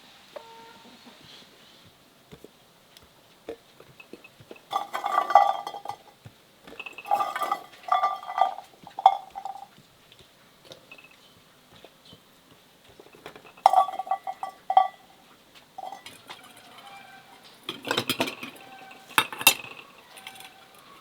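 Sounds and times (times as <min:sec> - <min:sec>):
kitchenware clinking and scraping: 0:03.5 - 0:09.8, 0:10.6 - 0:12.1, 0:12.8 - 0:21.0.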